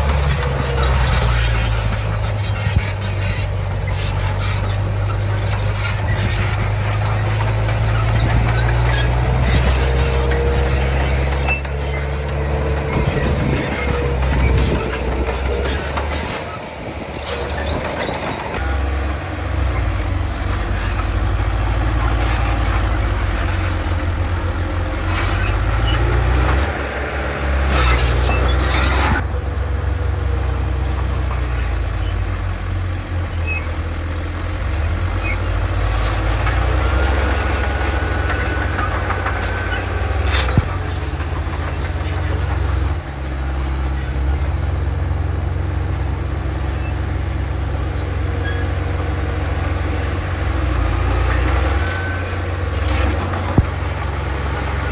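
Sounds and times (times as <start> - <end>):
metal clanks: 0.0 - 19.2, 49.4 - 54.9
bulldozer diesel engine under load: 0.0 - 54.9
high squeals of crawler tracks: 0.0 - 54.9.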